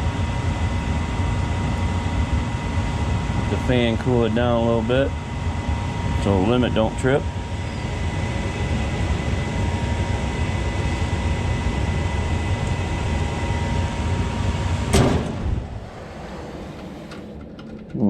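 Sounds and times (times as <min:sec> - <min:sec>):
furnace blower rushing air: 0:00.0 - 0:17.7
faint motor hum: 0:00.0 - 0:18.0.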